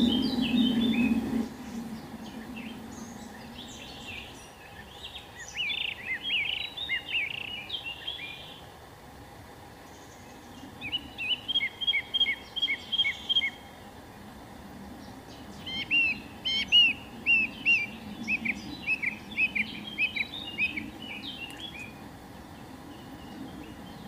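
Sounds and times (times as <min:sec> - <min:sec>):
songbird whistling notes: 0:00.0 - 0:08.6, 0:10.8 - 0:13.6, 0:15.6 - 0:22.0
low background noise: 0:00.0 - 0:24.0.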